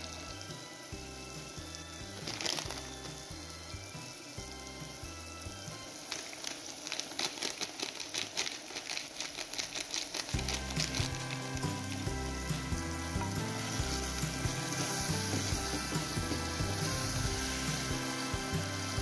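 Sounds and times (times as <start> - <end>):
spices sizzling and crackling in oil: 0.0 - 19.0.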